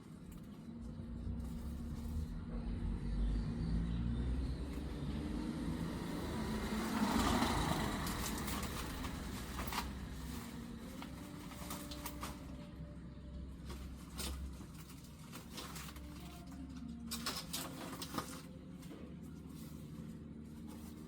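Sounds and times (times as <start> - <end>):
vehicle passing by: 0.8 - 13.3.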